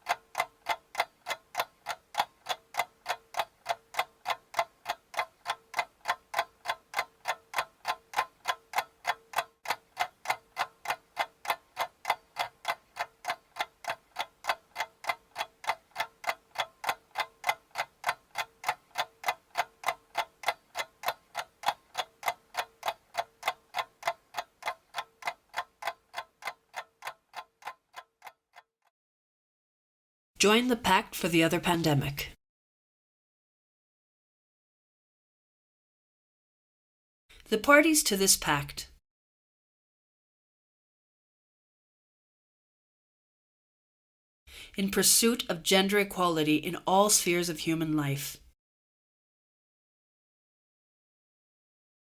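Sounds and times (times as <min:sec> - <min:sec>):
steady ticking: 0:00.0 - 0:28.7.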